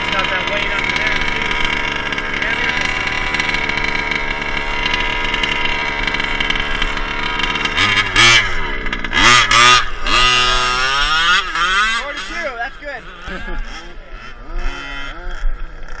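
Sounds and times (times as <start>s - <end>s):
small gas engine revving: 0.0s - 16.0s.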